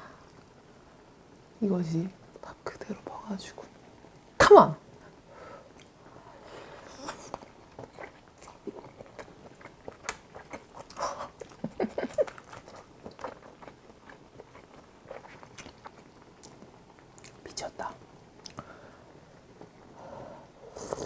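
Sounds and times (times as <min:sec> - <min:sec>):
wet chewing: 0:06.9 - 0:17.4.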